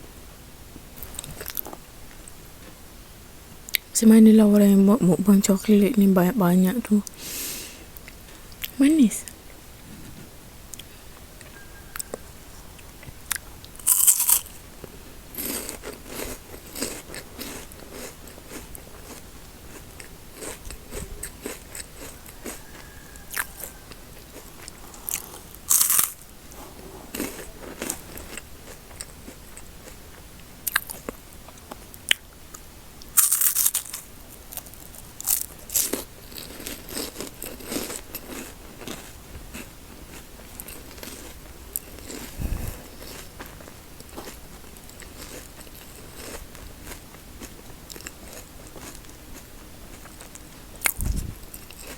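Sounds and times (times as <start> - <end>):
chewing and crackling: 1.0 - 2.8, 10.7 - 51.9
crisp crunching bites: 13.3 - 14.6, 15.4 - 26.3, 33.0 - 44.4.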